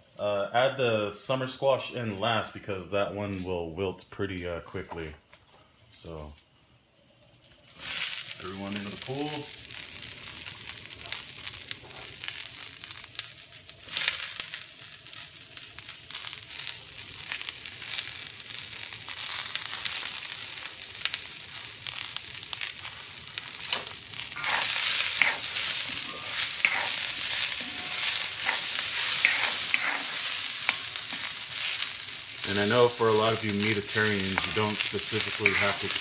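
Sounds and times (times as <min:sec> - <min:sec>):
vegetables sizzling in a wok: 0:06.0 - 0:36.0
wooden spoon scraping a wok: 0:23.7 - 0:36.0.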